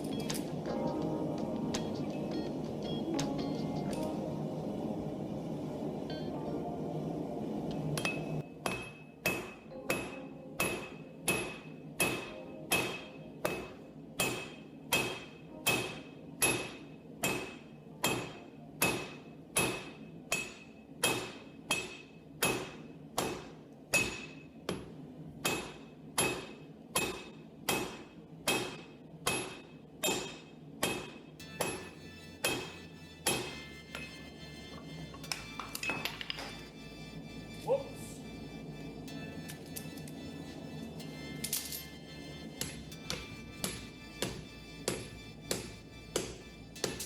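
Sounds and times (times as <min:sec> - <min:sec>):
hammer striking metal on anvil: 0:08.0 - 0:36.8, 0:39.1 - 0:47.0.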